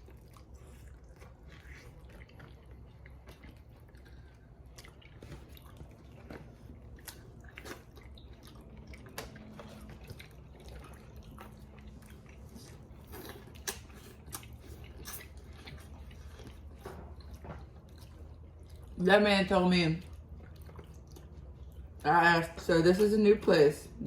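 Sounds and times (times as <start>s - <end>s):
close chewing and biting: 0.0s - 23.5s
wet clicks and smacks: 7.0s - 9.8s.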